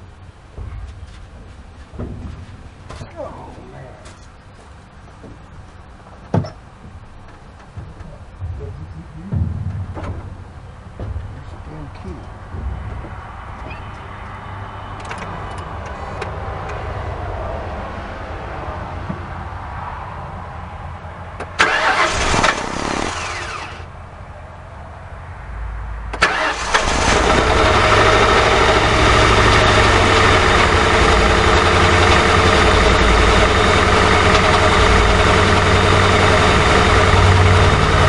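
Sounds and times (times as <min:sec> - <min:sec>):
car engine cranking and idling: 0:00.0 - 0:17.0, 0:21.0 - 0:24.6, 0:26.0 - 0:38.0
burst of noise: 0:21.6 - 0:23.9.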